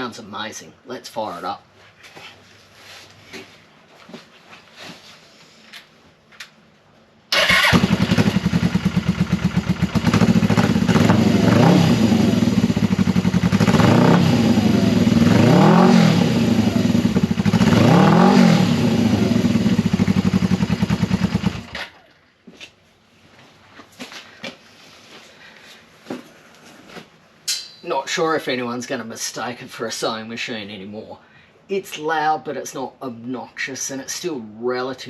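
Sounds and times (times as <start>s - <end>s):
motorcycle engine idling and revving: 7.4s - 22.1s.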